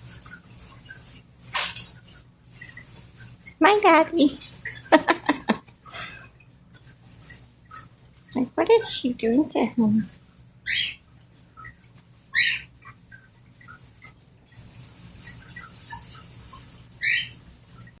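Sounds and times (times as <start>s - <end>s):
cockatiel soft chirps: 11.6s - 13.0s, 14.7s - 17.9s
cockatiel loud calls: 12.3s - 12.7s, 17.0s - 17.4s.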